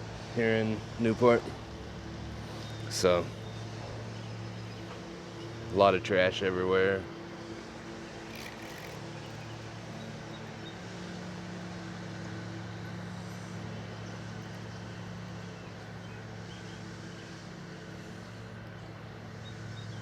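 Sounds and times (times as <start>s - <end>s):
engine running steadily: 6.4s - 20.0s.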